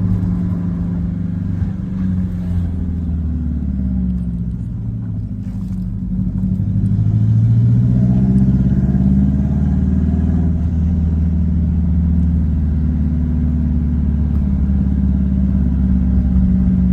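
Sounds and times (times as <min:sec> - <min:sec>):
car engine rumbling while driving: 0:00.0 - 0:16.9.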